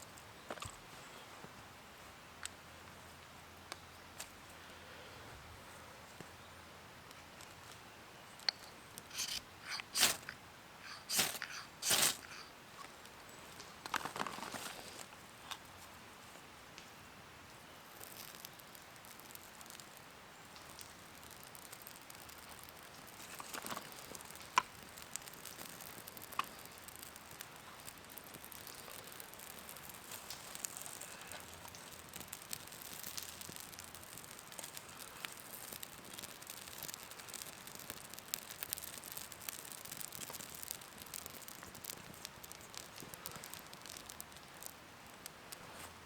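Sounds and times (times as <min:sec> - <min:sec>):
soft steady hiss: 0:00.0 - 0:46.0
light ticks and pattering: 0:17.8 - 0:46.0.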